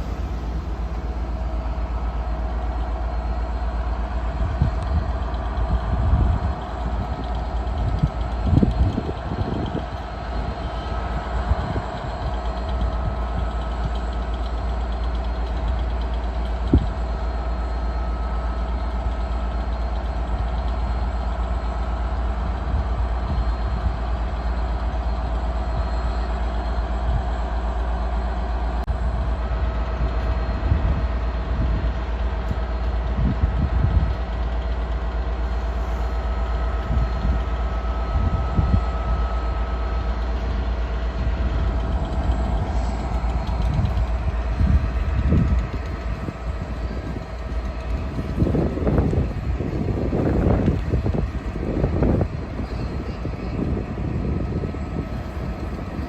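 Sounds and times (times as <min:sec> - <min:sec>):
train idling: 0:00.0 - 0:56.0.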